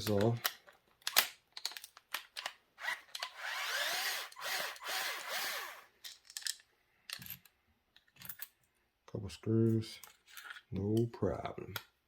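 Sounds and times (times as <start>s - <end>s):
power drill motor spinning: 2.8s - 5.9s.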